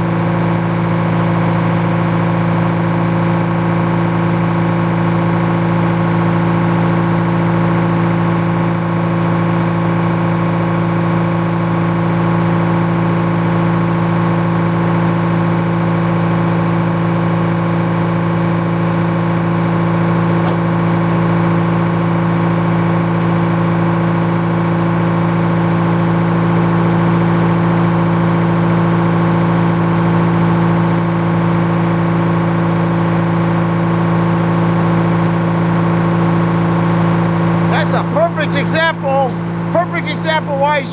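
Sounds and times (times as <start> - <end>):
sawmill engine humming: 37.1 - 40.9.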